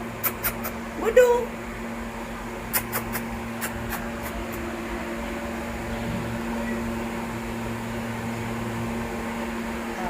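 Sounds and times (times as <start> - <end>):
appliance motor humming: 0.0 - 10.0.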